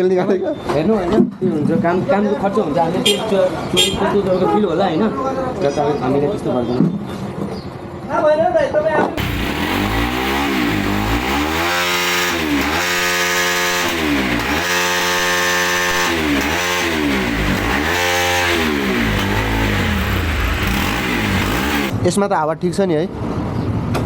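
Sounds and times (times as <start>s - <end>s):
motorcycle engine revving: 9.2s - 22.0s.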